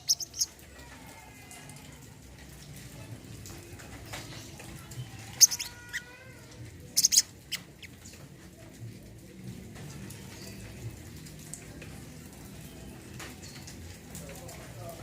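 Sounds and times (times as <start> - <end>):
bird chirping: 0.0 - 0.5, 5.3 - 5.9, 7.0 - 8.2.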